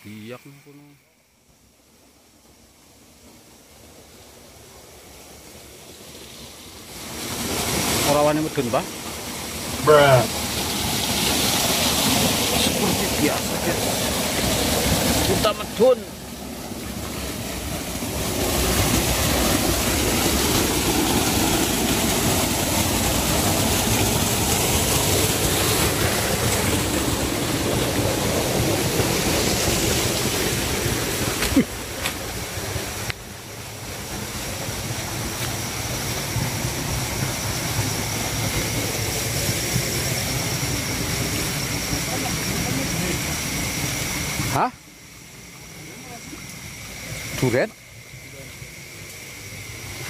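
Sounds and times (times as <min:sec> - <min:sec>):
faint high steady tone: 0:00.0 - 0:01.8
river water rushing: 0:04.0 - 0:44.6.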